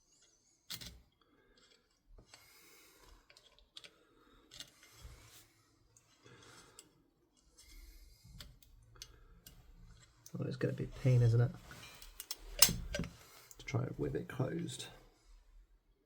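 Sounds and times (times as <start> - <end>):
small metal parts clicking: 0.1 - 2.0, 3.2 - 4.9, 11.9 - 13.1.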